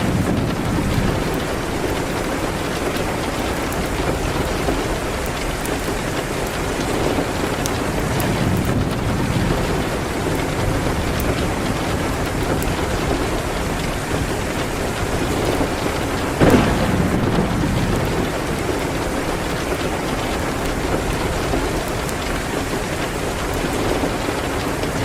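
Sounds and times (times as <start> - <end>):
rain pattering on a window: 0.0 - 25.0
fireplace crackling: 14.6 - 22.5.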